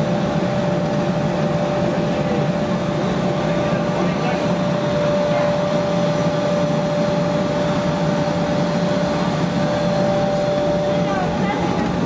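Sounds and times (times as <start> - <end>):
milling machine running: 0.0 - 12.0.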